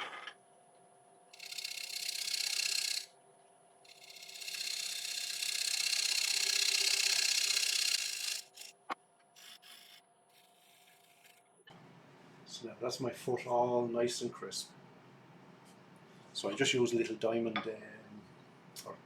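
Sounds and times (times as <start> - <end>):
turning tool cutting wood: 1.4 - 3.1, 3.9 - 8.7, 9.4 - 11.4
wood lathe whining: 1.4 - 3.1, 3.9 - 8.7.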